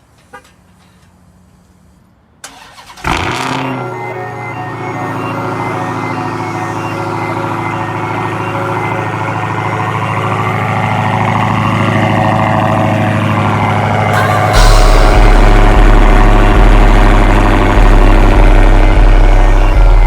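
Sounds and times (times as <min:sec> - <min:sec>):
vehicle engine running: 0:03.1 - 0:20.0
heavy low rumble: 0:06.2 - 0:20.0.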